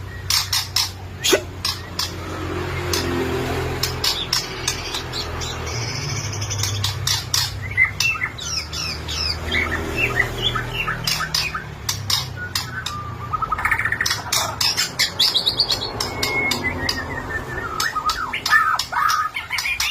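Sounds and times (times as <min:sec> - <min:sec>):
songbird whistling and clicking: 0:00.0 - 0:03.2, 0:03.8 - 0:19.9
harsh buzzy bird phrase: 0:01.2 - 0:01.6.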